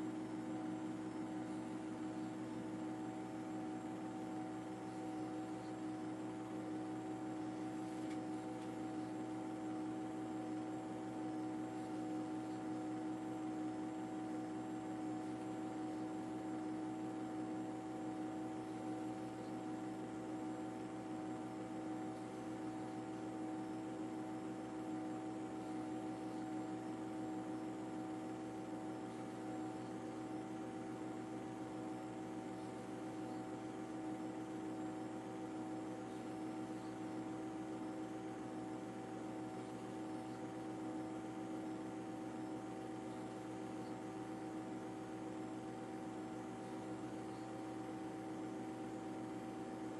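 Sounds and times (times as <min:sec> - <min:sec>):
mechanical drone with humming tones: 0:00.0 - 0:49.9.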